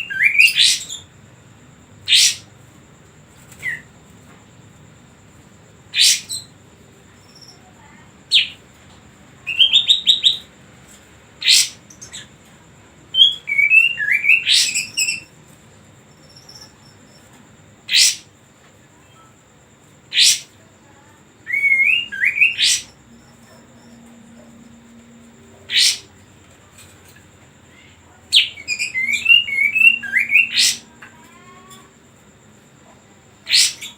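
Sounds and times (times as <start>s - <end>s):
bird singing whistled notes: 0.0s - 1.1s, 2.1s - 2.5s, 6.0s - 6.5s, 9.4s - 10.5s, 11.4s - 12.3s, 13.1s - 15.4s, 17.9s - 18.3s, 20.1s - 20.5s, 21.4s - 26.2s, 28.3s - 31.0s, 33.5s - 33.9s.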